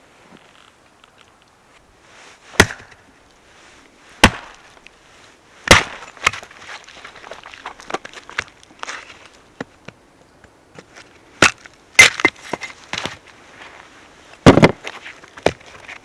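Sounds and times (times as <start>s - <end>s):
firewood being split: 2.5s - 3.1s, 4.2s - 4.9s, 5.6s - 9.2s, 11.4s - 13.2s, 14.4s - 16.0s
wood cracking: 2.6s - 3.0s, 4.2s - 4.9s, 5.7s - 9.1s, 11.4s - 12.8s, 14.4s - 14.8s.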